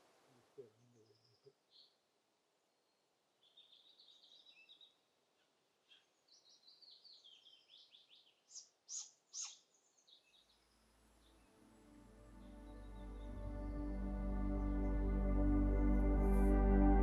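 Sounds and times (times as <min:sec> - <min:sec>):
songbird chirping trills: 0:00.6 - 0:17.0
soft ambient music: 0:10.6 - 0:17.0.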